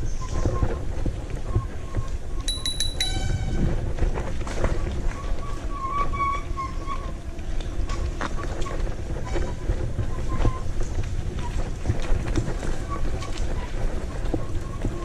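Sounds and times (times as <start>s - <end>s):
wind rumbling on microphone: 0.0s - 15.0s
sharp high chirps: 2.5s - 3.5s.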